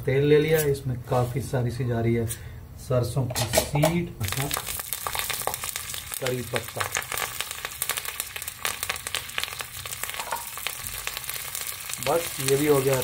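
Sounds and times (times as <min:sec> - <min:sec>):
sharp popping in oil: 0:03.6 - 0:13.0
seeds sizzling in hot oil: 0:04.2 - 0:13.0.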